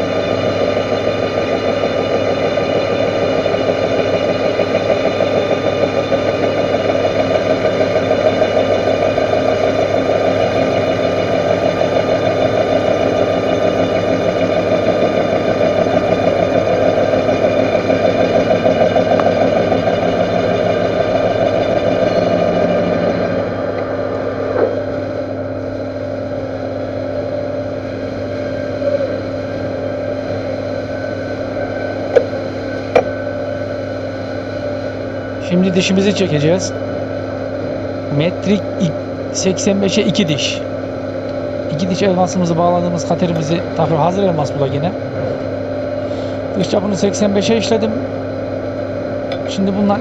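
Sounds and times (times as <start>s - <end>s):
metal lathe running: 0.0s - 50.0s.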